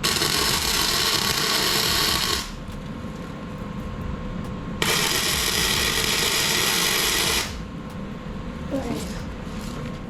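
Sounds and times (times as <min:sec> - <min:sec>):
welding arc crackling on steel: 0:00.0 - 0:02.7, 0:04.8 - 0:07.6.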